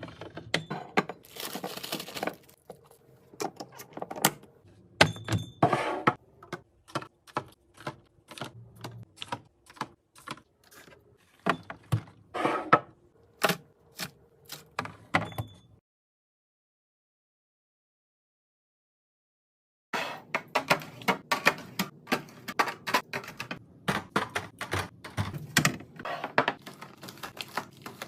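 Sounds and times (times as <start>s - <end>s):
packaging rustling: 1.2s - 3.0s.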